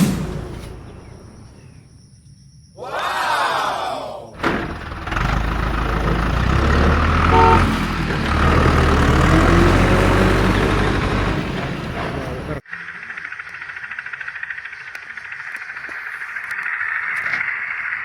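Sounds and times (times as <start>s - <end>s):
falling sweep: 0.0s - 2.0s
vehicle engine droning: 0.0s - 2.0s, 4.4s - 18.0s
short pitched tone: 7.3s - 7.8s.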